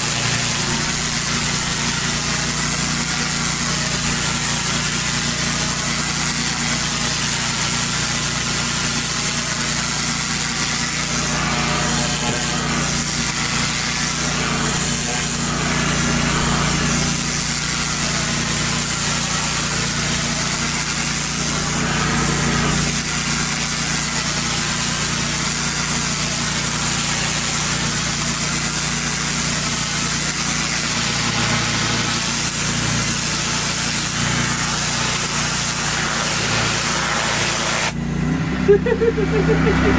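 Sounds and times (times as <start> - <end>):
water spray hiss: 0.0 - 38.0
petrol engine running: 37.9 - 39.9.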